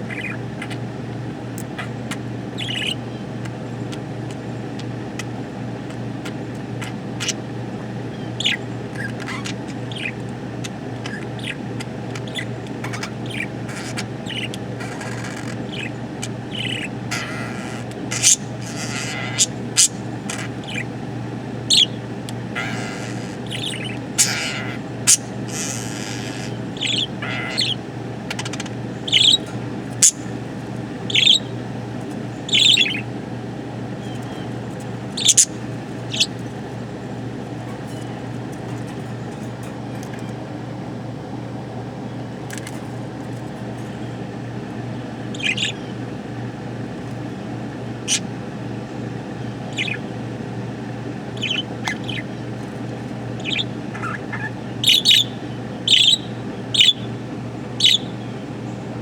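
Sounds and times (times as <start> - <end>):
budgerigar chirping: 0.0 - 0.9, 1.6 - 3.2, 8.1 - 21.0, 21.7 - 30.4, 31.0 - 31.6, 32.4 - 33.1, 34.0 - 36.5, 45.3 - 45.9, 48.0 - 48.3, 49.6 - 50.1, 51.3 - 52.6, 53.3 - 57.1, 57.8 - 58.2
low background hum: 0.0 - 59.0.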